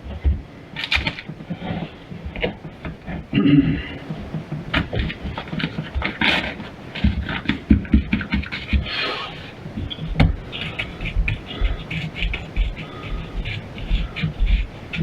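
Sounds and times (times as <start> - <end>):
drywall scraping and knocking: 0.0 - 15.0
low thumps: 9.7 - 15.0.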